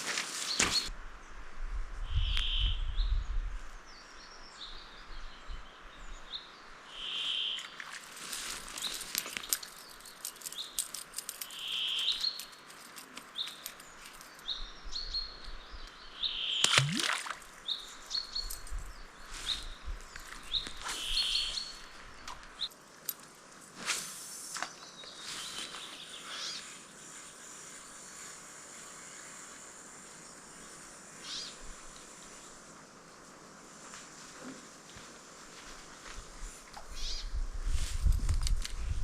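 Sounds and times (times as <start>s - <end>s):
wild birds singing: 2.1s - 22.8s, 24.4s - 33.6s, 36.8s - 37.6s
clicks and rustles: 8.0s - 14.4s.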